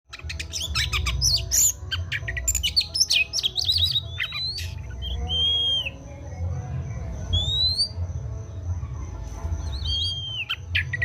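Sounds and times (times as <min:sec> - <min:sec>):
bird singing varied whistles: 0:00.1 - 0:06.0, 0:07.3 - 0:08.0, 0:09.6 - 0:11.0.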